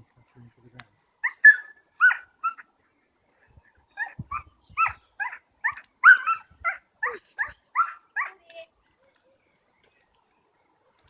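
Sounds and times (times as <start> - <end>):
soft low thuds: 3.5 - 5.0.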